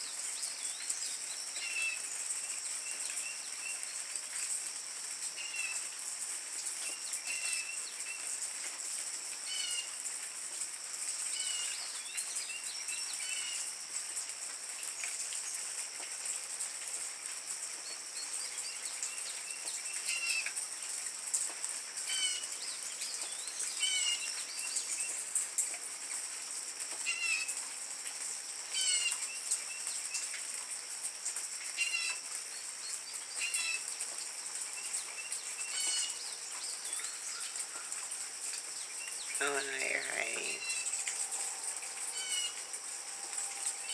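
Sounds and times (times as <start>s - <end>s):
hummingbirds chipping and twittering: 31.8s - 43.9s.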